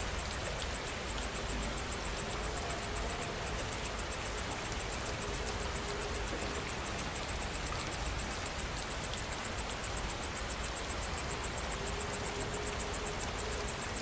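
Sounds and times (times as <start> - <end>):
insect chirping: 0.0 - 14.0
steady rain: 0.0 - 14.0.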